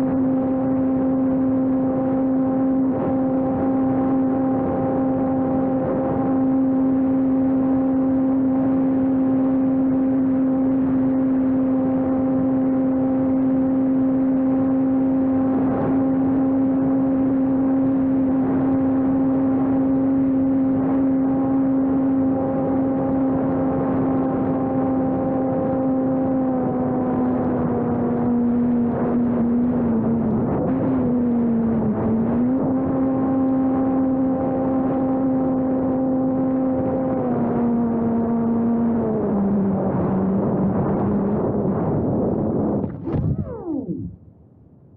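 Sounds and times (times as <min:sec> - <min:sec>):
electric model airplane motor whine: 0:42.4 - 0:44.2
rush of air: 0:42.8 - 0:44.2.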